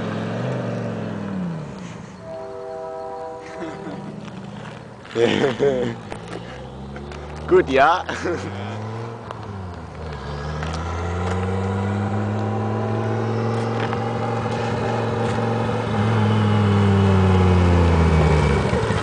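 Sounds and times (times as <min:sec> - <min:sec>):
car engine running: 0:04.2 - 0:19.0.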